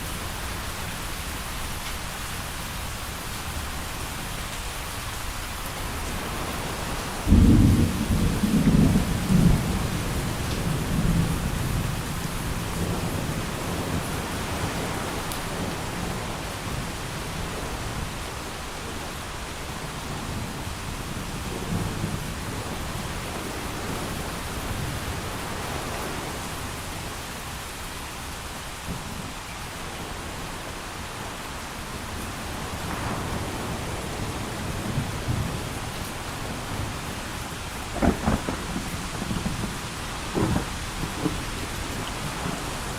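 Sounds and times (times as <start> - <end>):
heavy rain hissing: 0.0 - 42.9
thunder rumbling: 5.9 - 16.4, 32.4 - 42.9.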